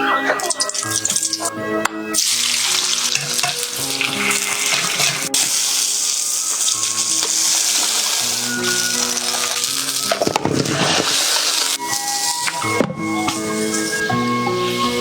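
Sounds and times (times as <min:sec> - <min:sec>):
background music: 0:00.0 - 0:15.0
loud steady hissing: 0:02.2 - 0:12.6.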